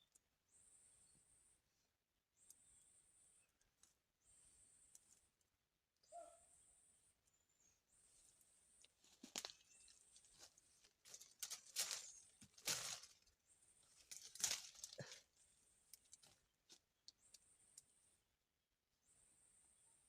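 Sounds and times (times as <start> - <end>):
rustling and crinkling: 8.9 - 15.3.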